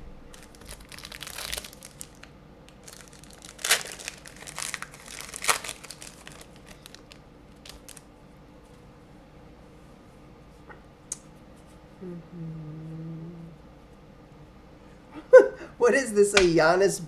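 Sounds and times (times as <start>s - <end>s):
sharp wrapper crackles: 0.3s - 8.1s
wrapper crinkling and tearing: 0.3s - 8.1s.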